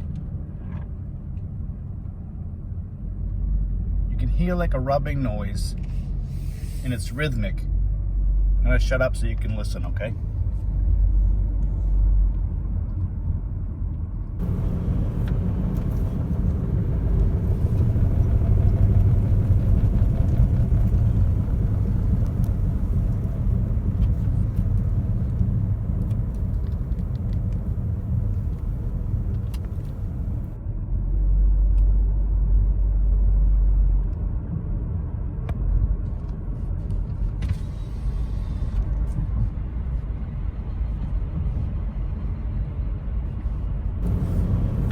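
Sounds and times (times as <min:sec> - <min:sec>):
car road and engine rumble: 0:14.3 - 0:30.6, 0:43.7 - 0:44.9
rhythmic brake rubbing: 0:14.4 - 0:30.6, 0:44.0 - 0:44.9.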